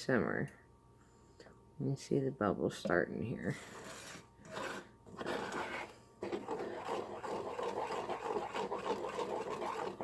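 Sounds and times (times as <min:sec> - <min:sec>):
spoon scraping thick mixture in pan: 0:03.6 - 0:10.0.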